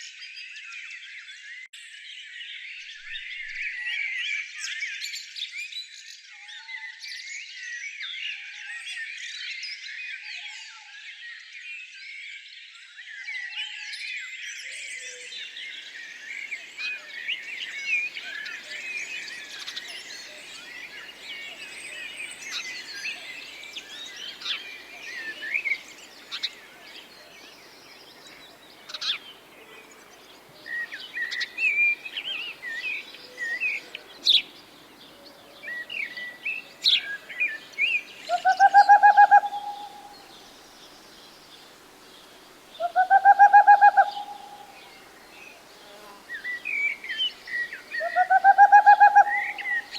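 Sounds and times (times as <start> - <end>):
birds chirping and trilling: 14.9 - 49.9
louder low bird calls: 16.7 - 49.9.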